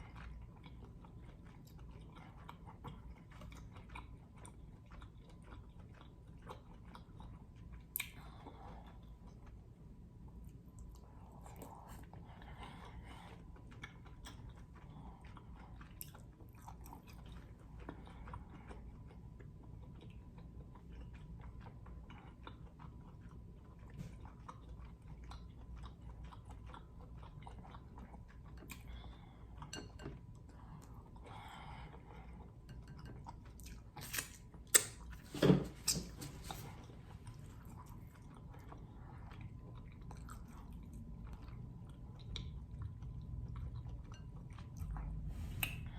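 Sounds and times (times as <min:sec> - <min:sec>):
small mouth clicks: 0:34.1 - 0:35.0.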